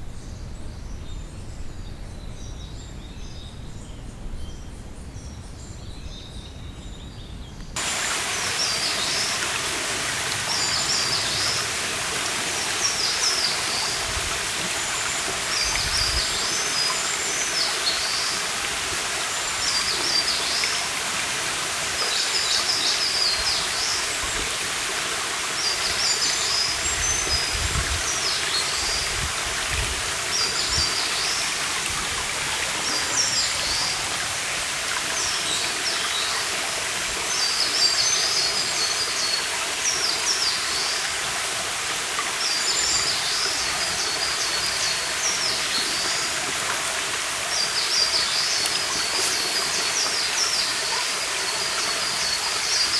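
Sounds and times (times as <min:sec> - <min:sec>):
stream rushing water: 0:07.8 - 0:52.9
songbird singing: 0:47.4 - 0:52.9.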